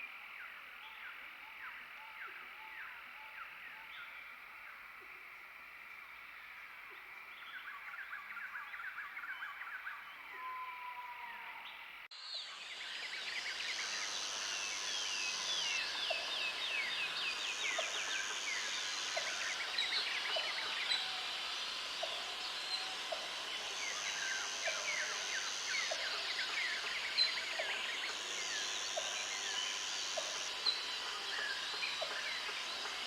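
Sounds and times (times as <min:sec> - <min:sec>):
steady high buzz: 0:12.9 - 0:33.0.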